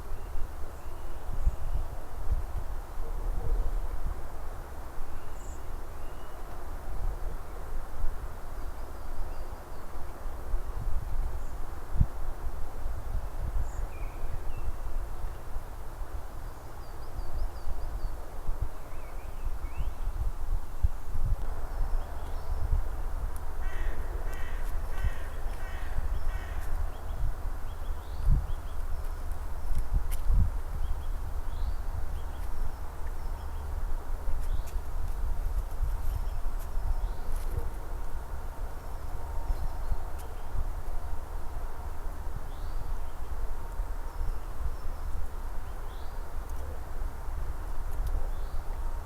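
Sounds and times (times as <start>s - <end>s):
wind rumble on microphone: 0.0s - 49.0s.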